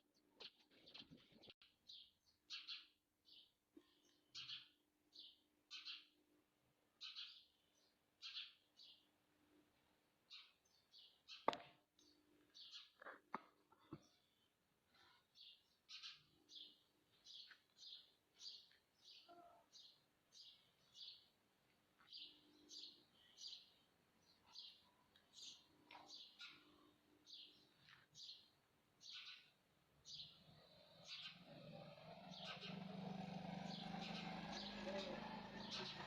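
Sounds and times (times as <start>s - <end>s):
faint bird chirping: 13.9s - 21.4s, 22.0s - 36.0s.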